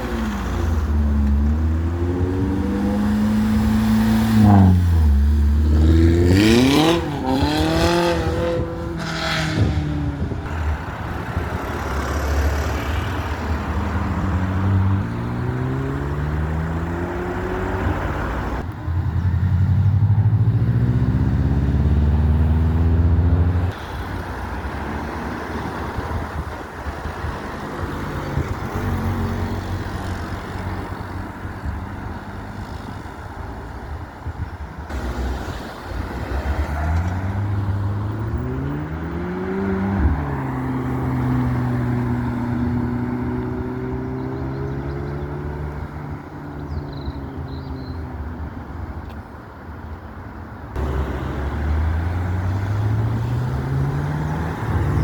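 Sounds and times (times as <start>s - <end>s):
engine revving and shifting gear: 0.0s - 10.6s, 13.8s - 23.8s, 36.3s - 47.2s, 50.8s - 55.0s
car engines driving past: 34.8s - 49.2s, 50.7s - 55.0s.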